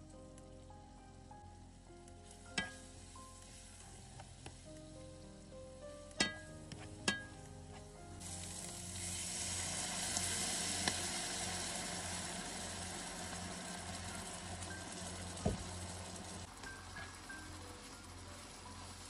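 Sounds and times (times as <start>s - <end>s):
food sizzling in frying pan: 2.3s - 4.8s, 8.2s - 19.0s
loud hiss of cream poured: 8.2s - 14.8s.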